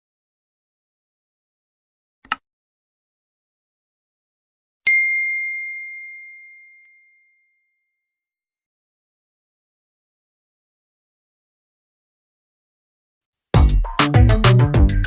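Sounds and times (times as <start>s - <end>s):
bell-like ding: 4.9s - 8.0s.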